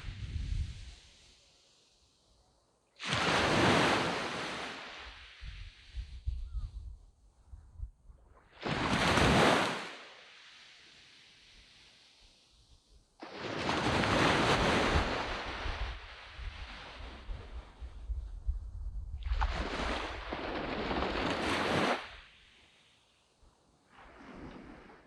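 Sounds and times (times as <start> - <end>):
wind rumbling on microphone: 0.0 - 1.2, 5.1 - 9.6, 13.8 - 22.2
waves breaking on beach: 0.0 - 2.2, 3.0 - 6.2, 8.4 - 17.9, 19.2 - 25.0.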